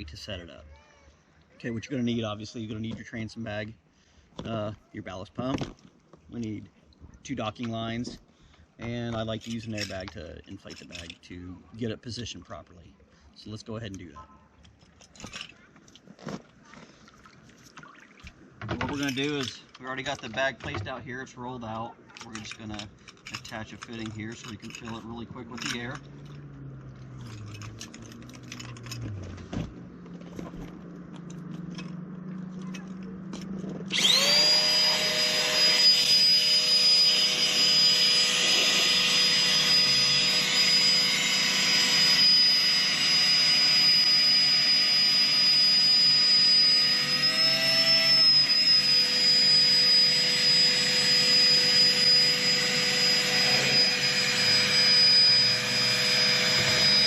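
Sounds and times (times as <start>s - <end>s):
electric air pump whining: 32.9s - 57.0s.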